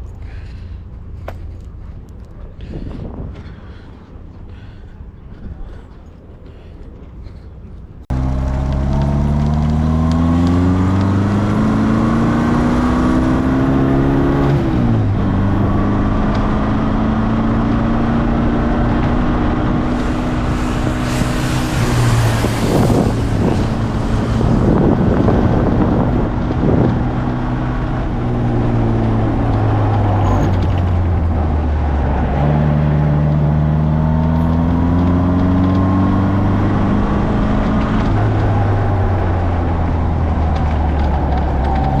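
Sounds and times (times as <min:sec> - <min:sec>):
sports car engine revving: 0:08.1 - 0:42.0
rushing hiss: 0:19.9 - 0:23.9.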